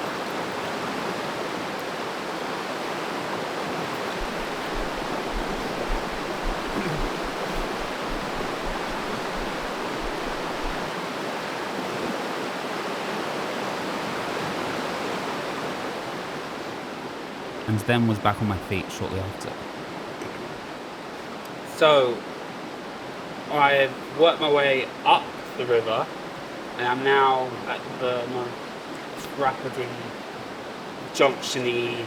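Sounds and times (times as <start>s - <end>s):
river water rushing over rocks: 0.0s - 17.6s
low bumps: 4.1s - 10.9s.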